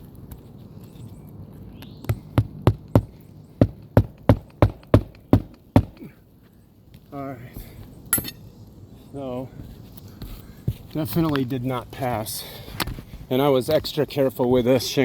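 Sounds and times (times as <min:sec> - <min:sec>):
hammer driving nails into shingles: 0:02.1 - 0:06.1.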